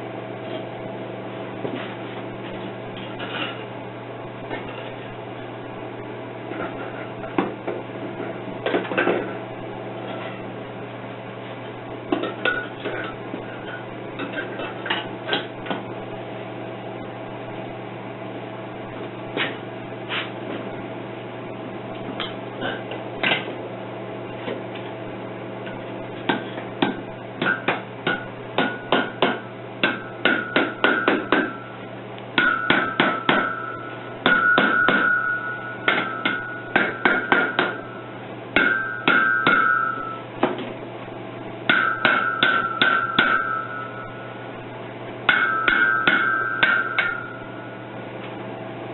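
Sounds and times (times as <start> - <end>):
hammer striking metal casting: 32.4 - 37.9, 38.6 - 40.2, 41.7 - 44.1, 45.3 - 47.5.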